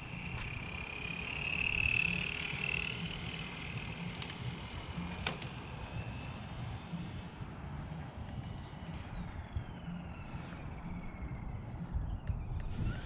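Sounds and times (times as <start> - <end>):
electric toy car motor whining: 0.0 - 7.6, 12.4 - 13.0.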